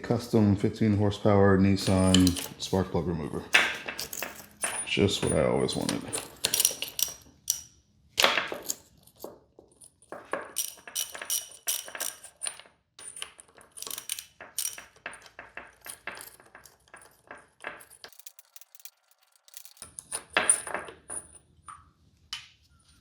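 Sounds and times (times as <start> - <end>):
ratchet clicking and clinking: 1.8 - 2.8, 3.5 - 9.3, 10.5 - 20.7.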